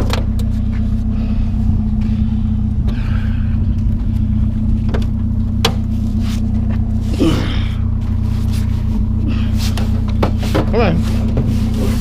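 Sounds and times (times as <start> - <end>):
truck engine idling: 0.0 - 12.0
sharp clicks and knocks: 4.8 - 5.9.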